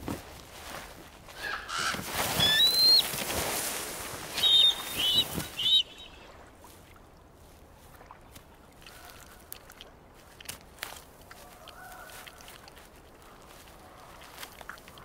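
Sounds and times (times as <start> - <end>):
rustling noise: 0.0 - 5.8
bird calling: 1.3 - 3.3, 4.2 - 6.4.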